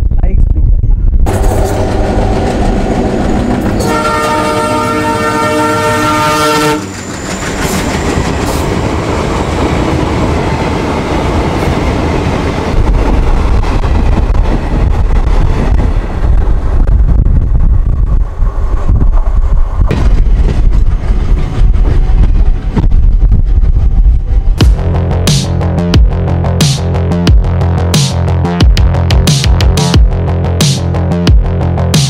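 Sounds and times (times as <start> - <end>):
train wheels over rails: 1.3 - 24.8
locomotive multi-tone horn: 3.7 - 7.0.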